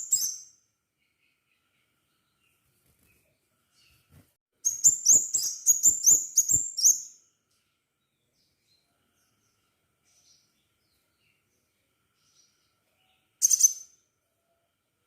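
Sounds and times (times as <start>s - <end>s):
bird singing sharp high chirps: 0.0s - 0.6s, 4.6s - 7.2s, 13.4s - 14.0s.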